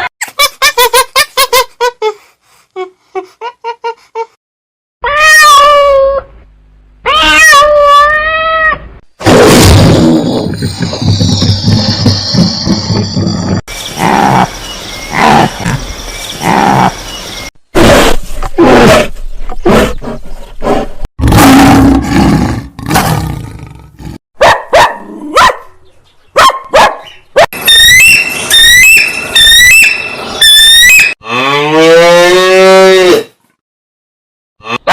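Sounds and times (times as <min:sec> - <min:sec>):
high repeated chirps: 0:27.6 - 0:31.2.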